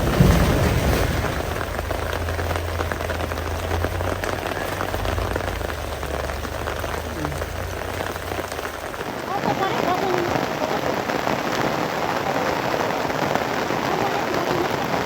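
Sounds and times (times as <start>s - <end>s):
low rumble: 0.0s - 9.1s
rain falling: 0.0s - 15.0s
raindrops ticking on surface: 0.0s - 15.0s.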